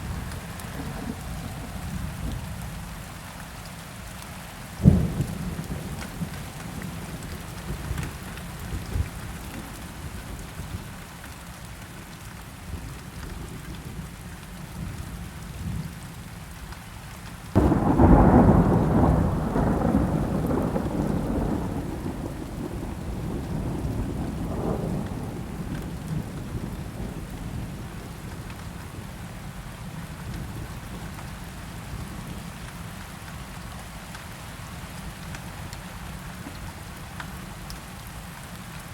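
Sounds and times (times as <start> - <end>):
steady rain falling: 0.0 - 38.9
thunder clap rumbling: 17.6 - 29.1.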